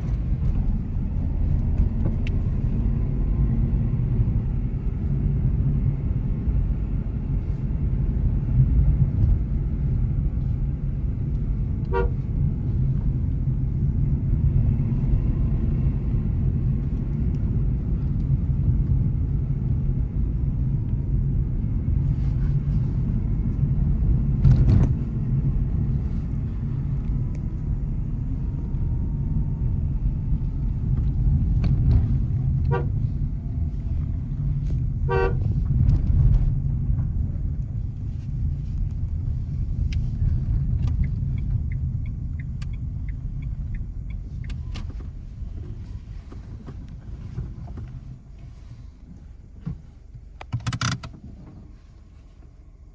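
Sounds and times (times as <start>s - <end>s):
car road and engine rumble: 0.0s - 52.9s
car horn beeps: 11.8s - 12.3s, 32.6s - 33.0s, 35.0s - 35.6s.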